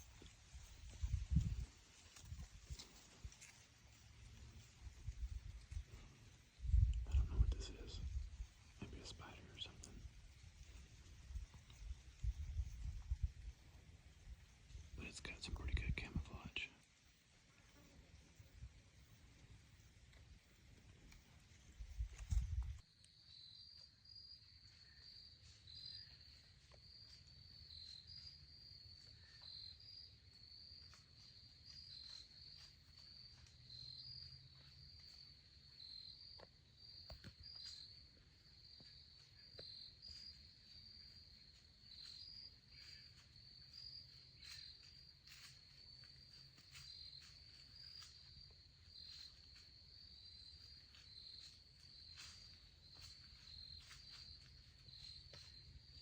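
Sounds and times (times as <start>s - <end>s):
faint cricket chirping: 0.0s - 56.0s
faint ticks: 17.6s - 23.2s, 36.3s - 38.2s.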